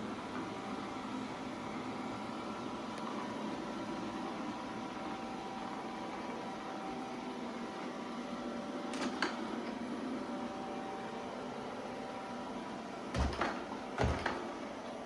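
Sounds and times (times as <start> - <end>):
heavier knocks: 13.2 - 14.4.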